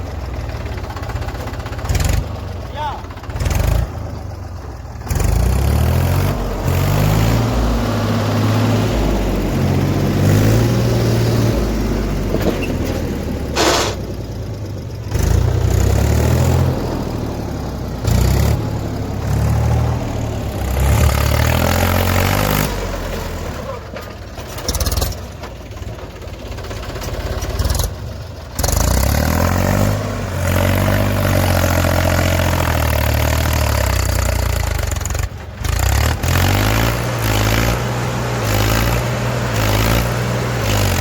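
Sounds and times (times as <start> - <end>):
diesel engine revving: 0.0 - 41.0
brief hiss: 13.6 - 14.0.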